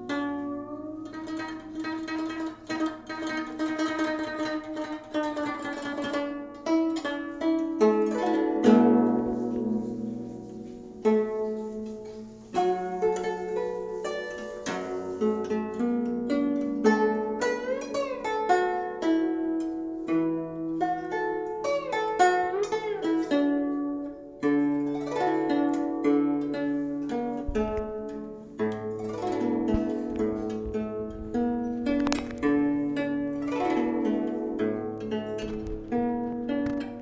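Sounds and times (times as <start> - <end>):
plucked zither melody: 0.0 - 37.0.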